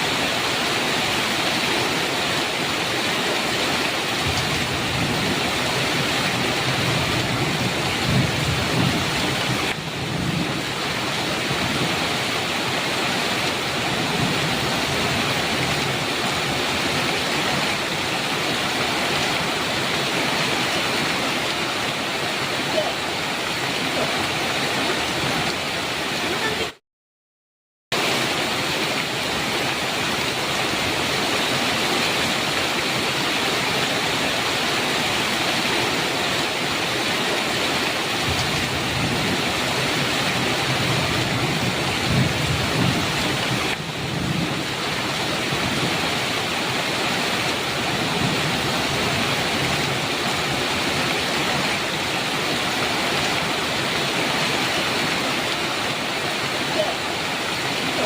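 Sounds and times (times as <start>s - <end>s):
heavy rain on a metal roof: 0.0s - 26.8s, 27.9s - 58.0s
thunder rumbling: 4.2s - 12.3s, 38.2s - 46.2s.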